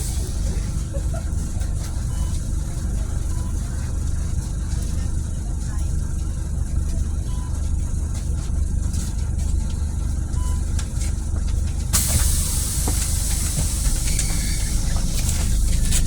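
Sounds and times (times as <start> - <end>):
bus engine droning: 0.0 - 16.0
pneumatic air hiss: 12.0 - 16.0.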